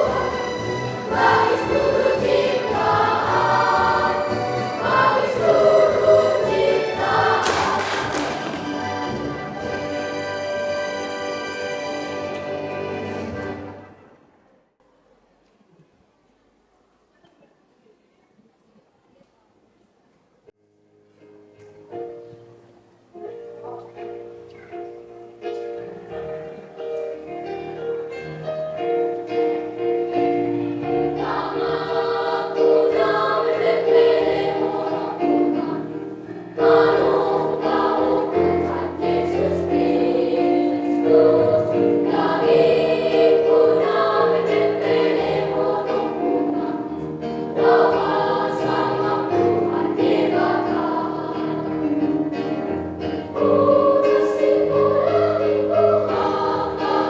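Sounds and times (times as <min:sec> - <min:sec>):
children's choir singing: 0:00.0 - 0:14.1, 0:30.0 - 0:57.0
keyboard accompaniment: 0:00.0 - 0:14.4, 0:21.0 - 0:57.0.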